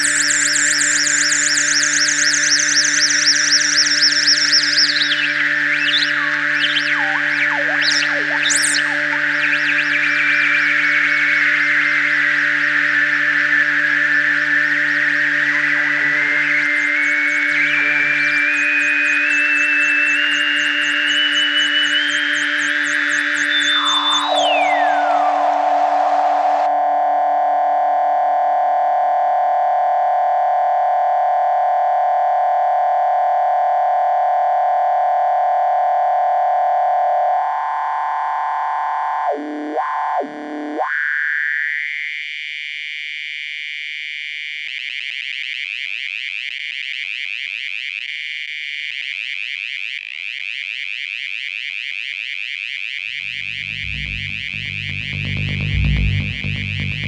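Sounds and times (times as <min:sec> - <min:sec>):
synthesizer music: 0:00.0 - 0:26.7, 0:53.1 - 0:57.0.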